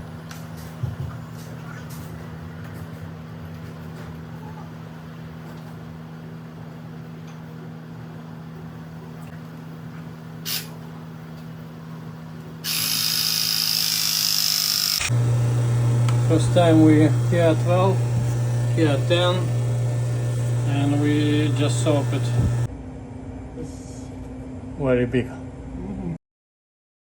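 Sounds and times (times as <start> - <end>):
press tool running: 12.6 - 22.7
steady low hum: 15.0 - 26.2.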